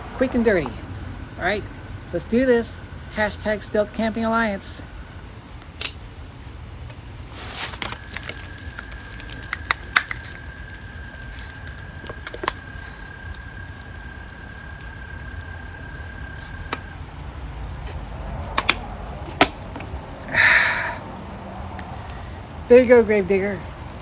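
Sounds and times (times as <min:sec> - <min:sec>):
beer can punctured and opened: 0:07.3 - 0:12.6, 0:17.9 - 0:19.8.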